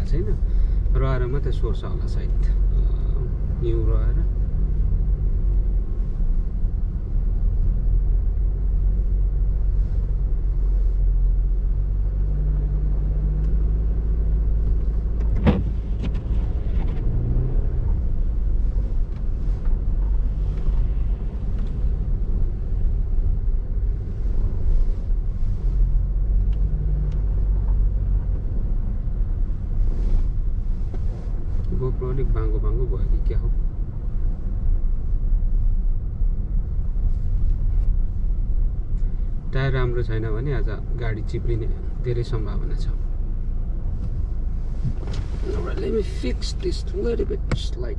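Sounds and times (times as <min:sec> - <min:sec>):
car engine and tyre rumble: 0:00.0 - 0:47.9.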